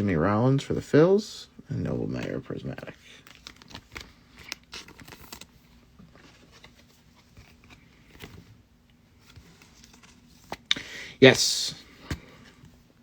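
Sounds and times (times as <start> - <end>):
trading cards clicking and rustling: 2.1 - 10.9, 11.8 - 12.8.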